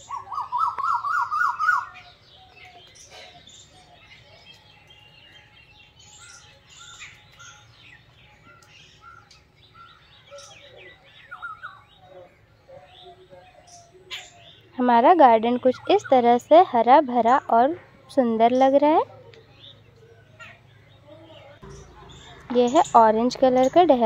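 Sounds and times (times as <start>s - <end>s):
birds chirping and calling: 0.0s - 24.0s.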